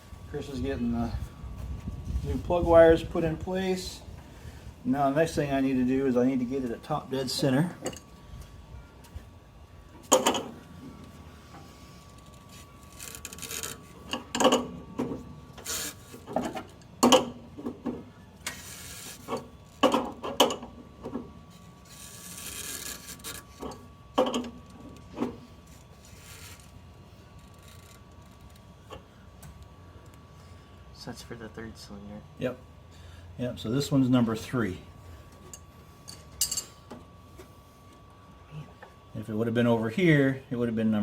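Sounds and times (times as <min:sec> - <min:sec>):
faint high hum: 0:00.0 - 0:41.0
tools and metal parts clinking: 0:12.9 - 0:14.7, 0:35.4 - 0:36.8.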